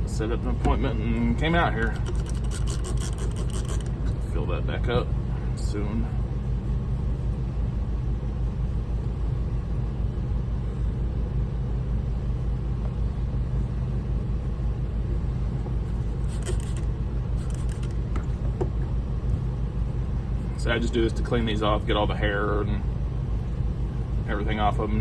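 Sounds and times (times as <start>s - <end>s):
motor humming: 0.0s - 4.3s, 15.9s - 19.5s.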